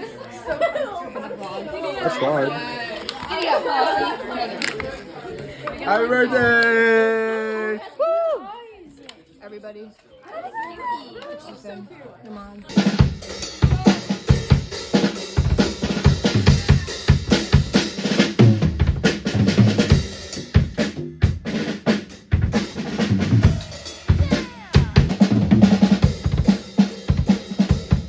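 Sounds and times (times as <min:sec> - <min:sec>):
drum kit fast beat: 0:12.7 - 0:28.0.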